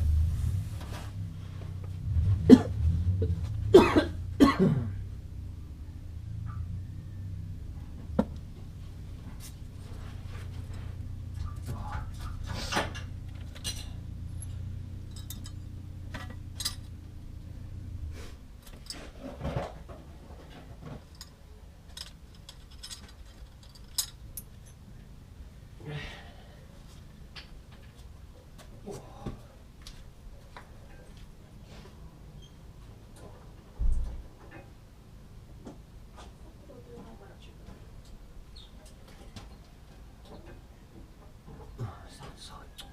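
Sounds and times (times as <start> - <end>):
steady low hum: 0.0 - 42.9
metal tools clinking and rattling: 11.4 - 17.0, 18.6 - 19.8, 20.9 - 24.8.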